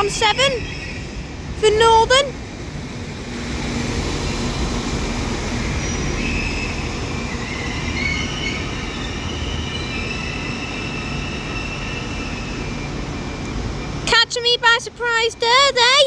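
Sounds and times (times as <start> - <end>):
train low rumble: 0.0 - 16.0
high-pitched wheel squeal: 4.9 - 14.0.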